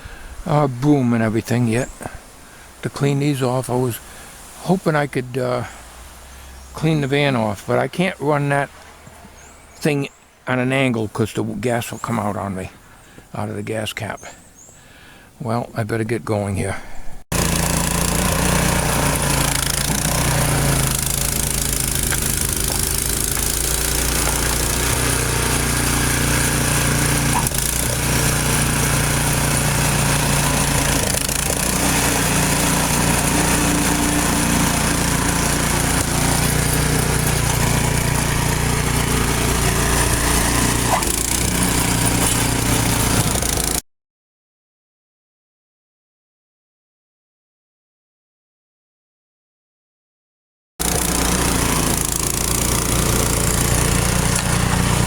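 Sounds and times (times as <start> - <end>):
leaf blower engine running: 17.3 - 43.8, 50.8 - 55.0.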